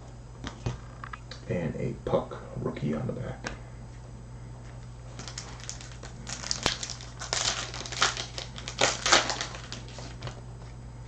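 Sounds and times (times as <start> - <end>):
wrapper crinkling: 5.1 - 10.4.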